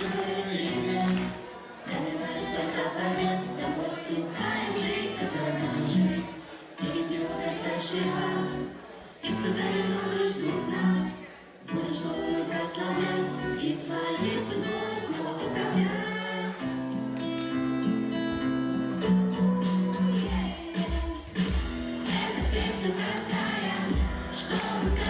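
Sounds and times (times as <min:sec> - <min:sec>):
people singing with music: 0:00.0 - 0:25.0.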